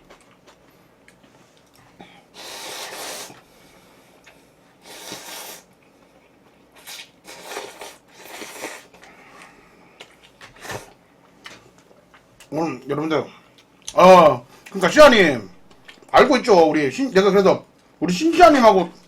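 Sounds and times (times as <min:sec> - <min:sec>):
person eating mouth noises: 0:06.8 - 0:09.1.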